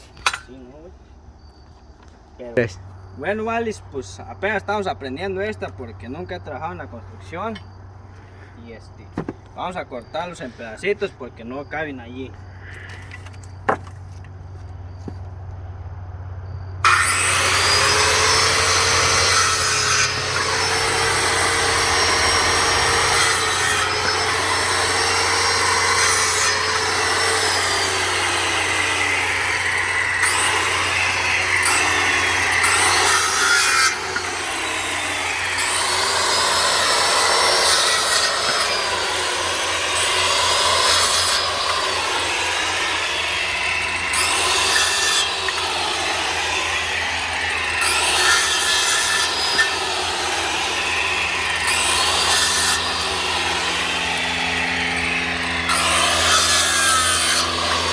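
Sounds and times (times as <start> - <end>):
power saw cutting wood: 0.0 - 0.6, 16.8 - 57.9.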